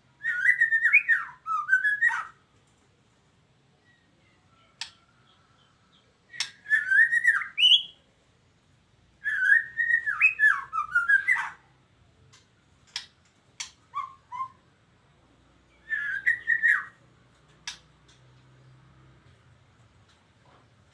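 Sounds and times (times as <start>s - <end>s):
bird singing whistled phrases: 0.2s - 2.4s, 6.3s - 8.0s, 9.2s - 11.6s, 13.9s - 14.7s, 15.8s - 17.0s
sharp single clicks: 4.8s - 5.0s, 6.3s - 6.6s, 17.5s - 18.4s.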